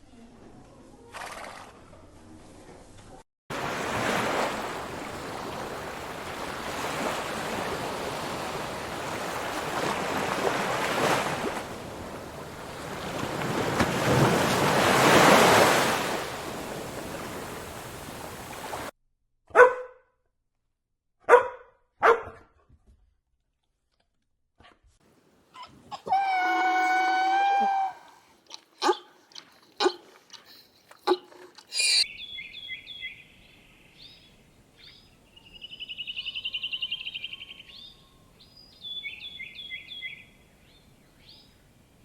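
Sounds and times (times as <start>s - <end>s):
dog barking: 19.5s - 20.1s, 21.2s - 22.6s, 28.8s - 29.1s.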